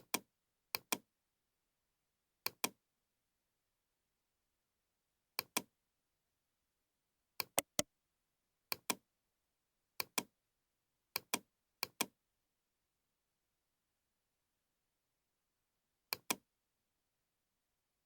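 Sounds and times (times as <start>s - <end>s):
computer mouse clicking: 7.6s - 7.8s.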